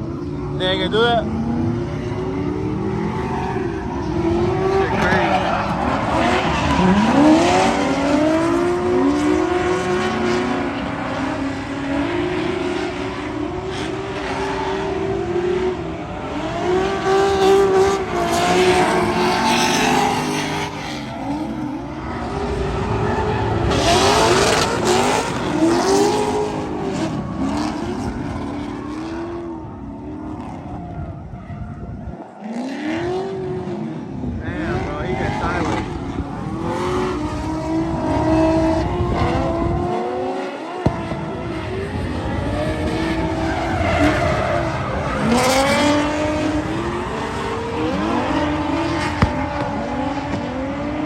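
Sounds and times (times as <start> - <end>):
car engine revving: 0.0 - 31.1, 32.4 - 51.0
tire squeal: 3.0 - 8.5, 41.3 - 49.9.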